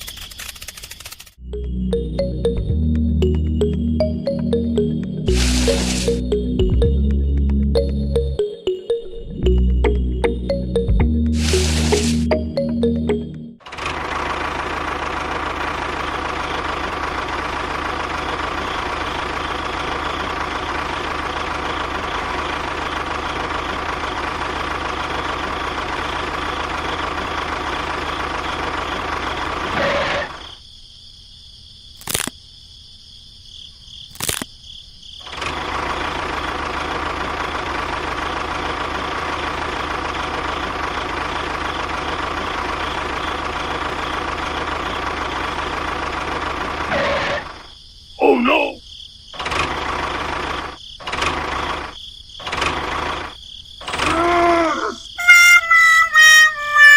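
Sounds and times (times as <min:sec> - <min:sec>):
sharp clicks: 0:00.0 - 0:01.4.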